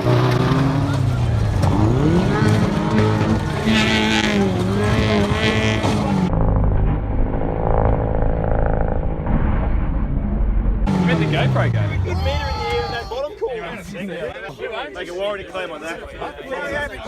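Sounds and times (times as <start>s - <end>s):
car engines revving: 0.0s - 12.9s
muffled engines rumbling: 0.0s - 14.4s.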